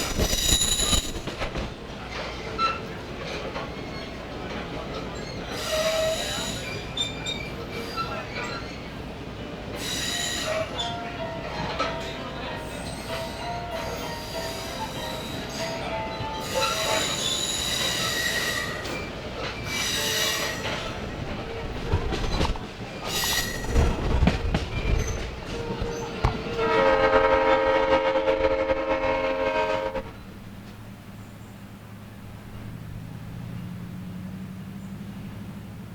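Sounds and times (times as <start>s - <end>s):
train wheels squealing: 0.0s - 1.7s, 2.3s - 9.1s, 9.7s - 26.7s
train cars rumbling and knocking: 0.0s - 35.9s
locomotive horn blast: 25.5s - 30.2s.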